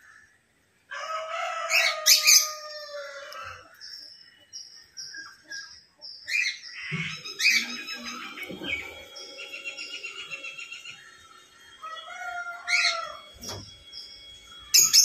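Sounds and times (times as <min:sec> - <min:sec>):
birds chirping and calling: 0:01.4 - 0:15.0
loud sweeping bird calls: 0:01.5 - 0:15.0
fast bird trill: 0:06.3 - 0:15.0.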